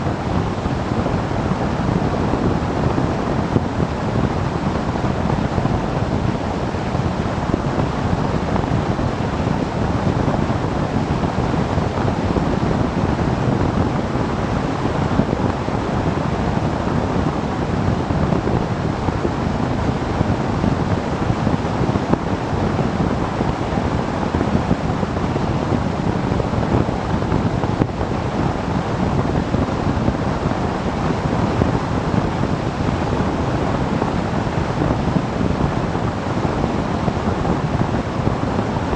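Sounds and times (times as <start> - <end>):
wind noise on microphone: 0.0 - 38.9.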